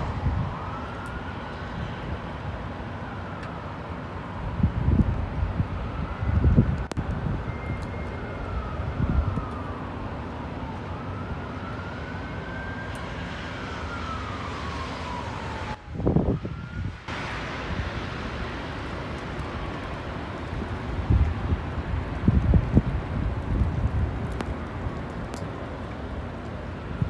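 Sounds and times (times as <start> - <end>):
wind noise on microphone: 0.0 - 0.8, 4.4 - 9.5, 15.4 - 18.4, 19.5 - 25.4
siren wailing: 0.0 - 17.1.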